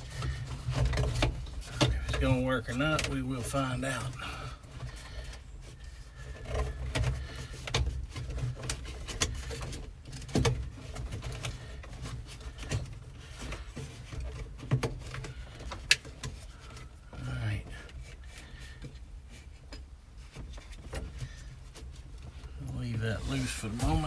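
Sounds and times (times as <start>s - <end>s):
steady low hum: 22.4s - 24.0s.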